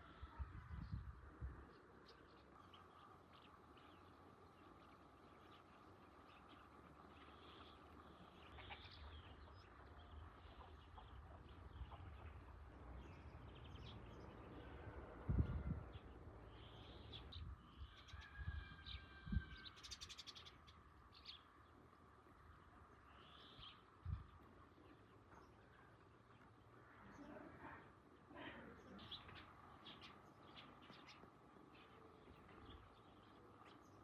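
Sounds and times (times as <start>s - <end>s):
birds chirping and calling: 18.9s - 21.5s, 26.4s - 34.0s.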